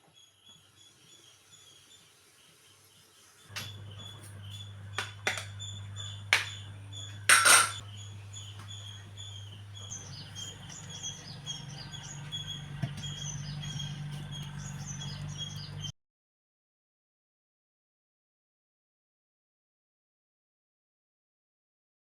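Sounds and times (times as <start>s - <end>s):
small birds chirping: 0.0s - 15.9s
steady low hum: 3.5s - 15.9s.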